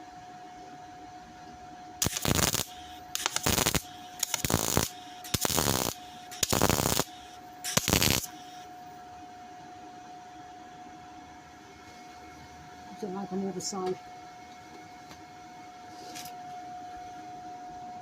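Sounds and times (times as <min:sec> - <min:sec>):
crackling welding bursts: 0:02.0 - 0:08.6.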